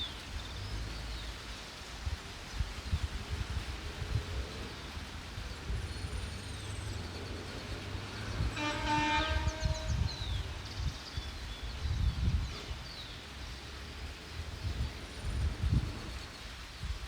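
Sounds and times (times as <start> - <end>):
brief horn-like tone: 8.5 - 10.5.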